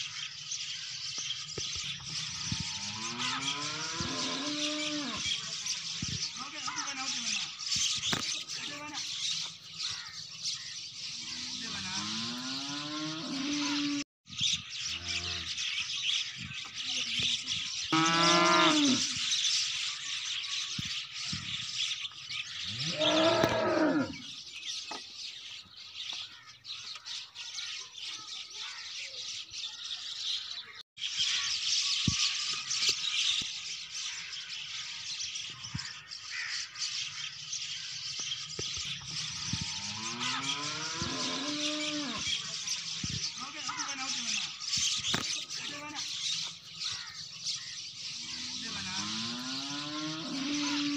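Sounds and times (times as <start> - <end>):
cows mooing: 2.2 - 5.3, 11.3 - 14.0, 17.9 - 19.1, 22.7 - 24.3, 39.1 - 42.4, 48.3 - 50.9.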